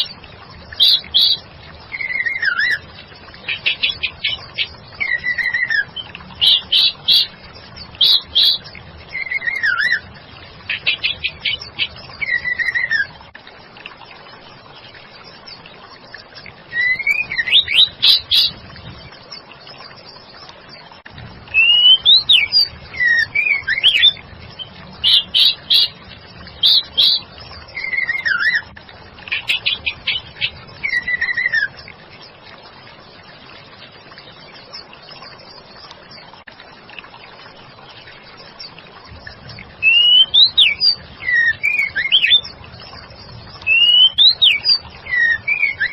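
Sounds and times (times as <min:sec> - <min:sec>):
bird chirps and whistled notes: 0:03.5 - 0:07.3, 0:08.0 - 0:10.0, 0:10.8 - 0:13.1, 0:16.7 - 0:18.6, 0:21.5 - 0:26.0, 0:26.6 - 0:28.7, 0:29.3 - 0:31.8, 0:39.8 - 0:43.0, 0:43.6 - 0:45.9.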